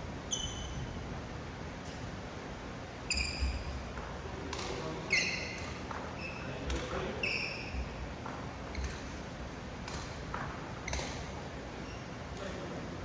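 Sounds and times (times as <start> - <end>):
sneakers squeaking: 0.3 - 1.0, 3.1 - 4.0, 5.1 - 8.0, 8.6 - 9.2, 9.9 - 12.2.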